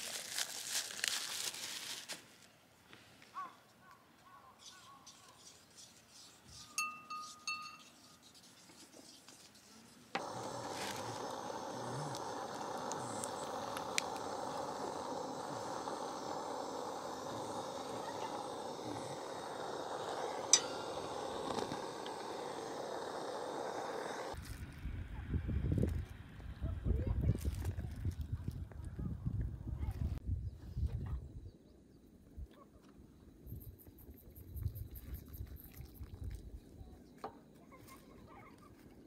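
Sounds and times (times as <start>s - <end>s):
light ringing clinks: 6.8s - 8.0s, 20.5s - 21.5s
gas stove hissing: 10.2s - 24.4s.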